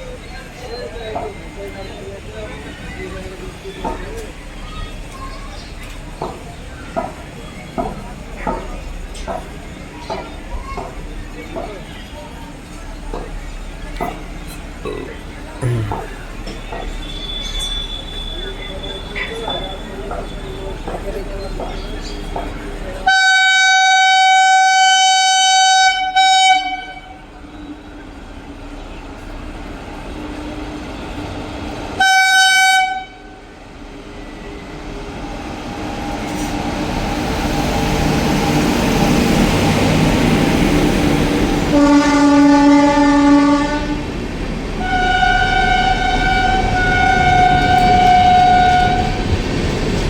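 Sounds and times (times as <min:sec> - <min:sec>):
train running noise: 0:00.0 - 0:25.4, 0:26.8 - 0:50.0
locomotive horn blasts: 0:23.1 - 0:27.1, 0:32.0 - 0:33.2, 0:41.7 - 0:44.1, 0:44.8 - 0:49.3.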